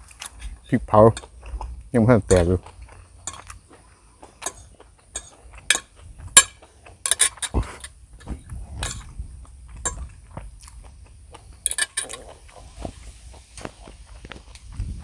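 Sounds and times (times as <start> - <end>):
cutlery clinking against a bowl: 3.2 - 3.6, 4.3 - 7.9, 9.8 - 10.1, 11.6 - 12.3.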